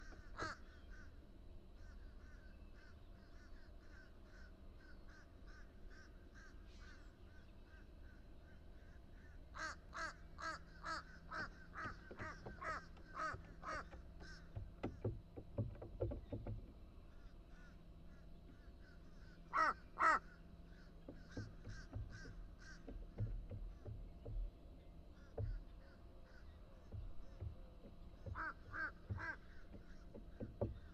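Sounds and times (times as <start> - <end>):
crow cawing: 0.0 - 1.2, 1.8 - 7.0, 8.8 - 14.7, 17.1 - 23.2, 28.2 - 30.4.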